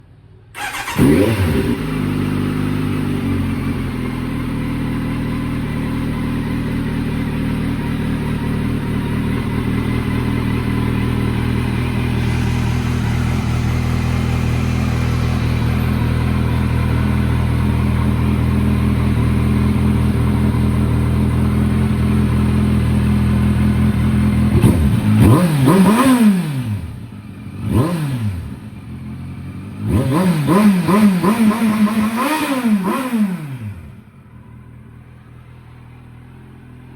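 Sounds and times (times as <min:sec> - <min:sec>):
motorcycle engine idling: 0:00.2 - 0:25.8, 0:26.8 - 0:27.8, 0:28.4 - 0:30.2, 0:33.6 - 0:36.9
motorcycle engine revving: 0:00.6 - 0:36.9.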